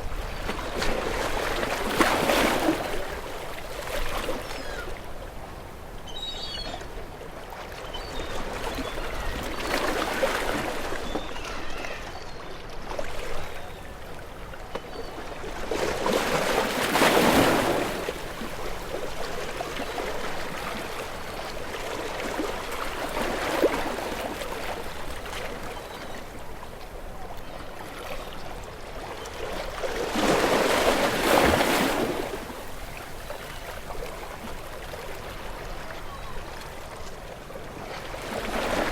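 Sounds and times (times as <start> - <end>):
ocean waves breaking: 14.8 - 25.8, 29.4 - 35.5.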